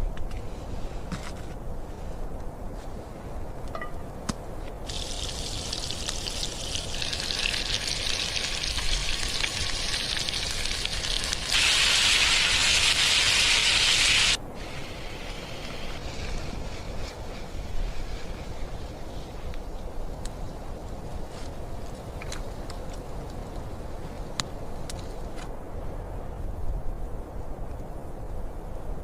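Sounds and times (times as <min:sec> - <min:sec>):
steady hiss: 0:04.8 - 0:25.4.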